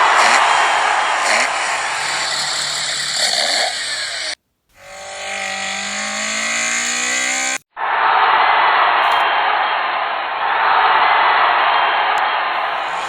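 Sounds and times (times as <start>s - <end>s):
toy cars rolling on track: 0.0s - 7.6s
wheels spinning whine: 0.0s - 7.6s, 12.5s - 13.0s.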